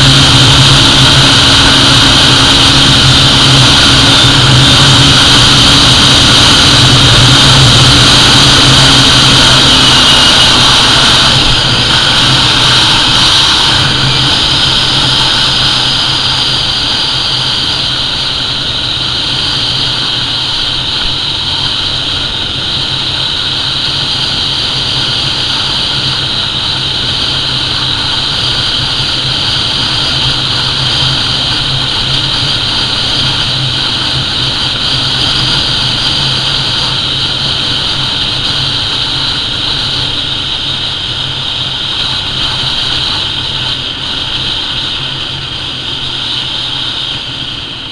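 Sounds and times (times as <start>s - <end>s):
motorcycle engine running at high speed: 0.0s - 47.9s
wind noise: 0.0s - 47.9s.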